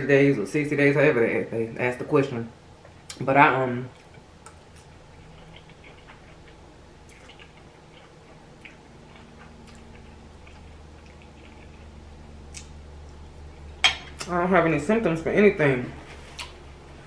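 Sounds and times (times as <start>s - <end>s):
person chewing noodles: 4.0s - 13.8s.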